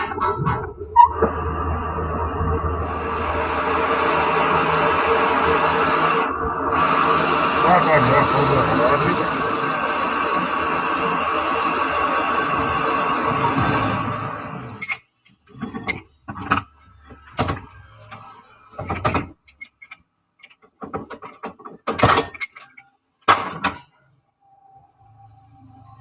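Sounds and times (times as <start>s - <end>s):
metal tools knocking and clanking: 14.8s - 16.7s, 18.8s - 23.9s.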